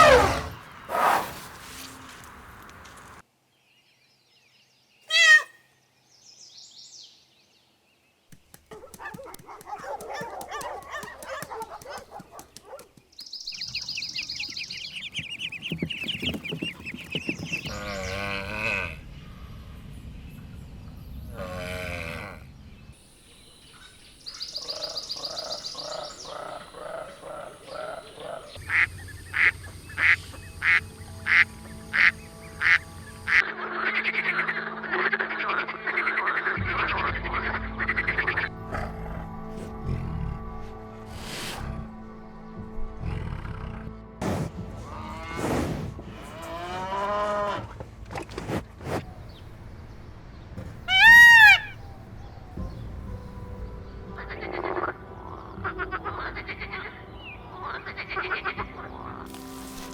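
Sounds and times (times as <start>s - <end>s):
ducks and poultry calling: 50.6s - 51.8s.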